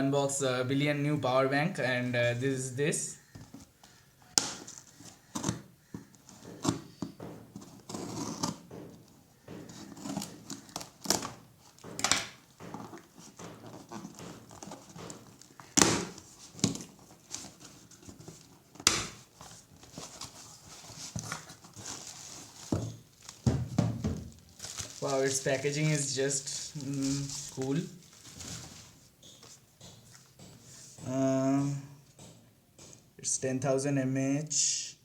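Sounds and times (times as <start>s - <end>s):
packaging rustling and crinkling: 3.2s - 30.4s.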